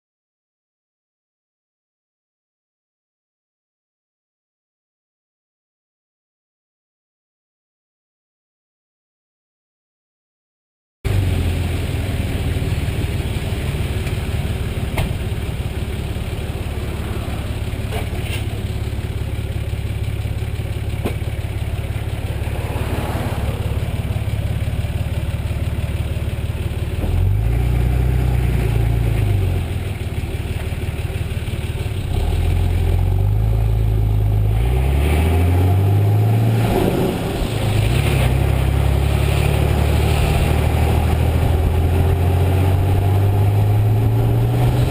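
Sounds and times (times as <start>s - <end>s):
diesel engine idling and revving: 11.1s - 44.9s.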